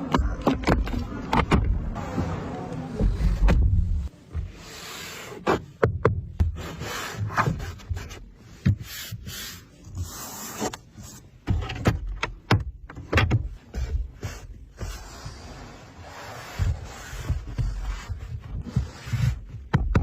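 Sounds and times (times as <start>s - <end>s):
handling noise rubbing and scraping: 13.5s - 20.0s.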